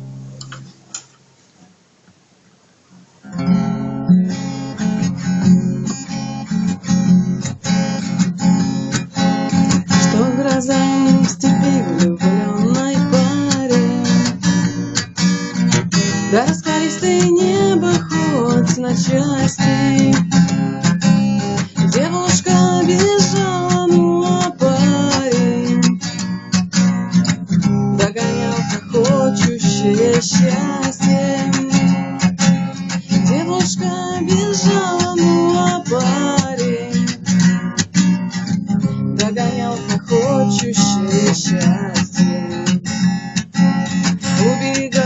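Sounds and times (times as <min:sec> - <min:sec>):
acoustic guitar strumming: 0:00.0 - 0:01.4, 0:02.9 - 0:45.0.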